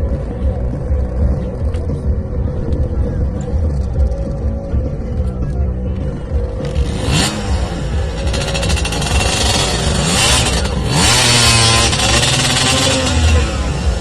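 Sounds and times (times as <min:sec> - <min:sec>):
off-road vehicle engine revving: 0:06.3 - 0:14.0.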